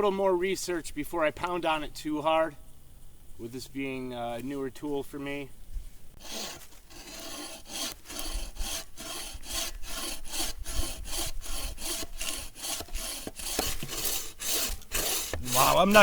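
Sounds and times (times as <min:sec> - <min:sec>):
bow saw cutting wood: 0:06.2 - 0:16.0.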